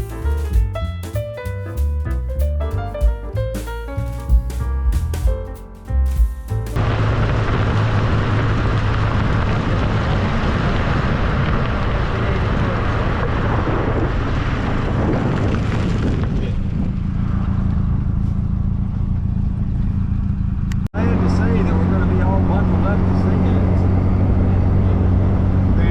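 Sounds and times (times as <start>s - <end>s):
car engine running: 16.8s - 25.9s.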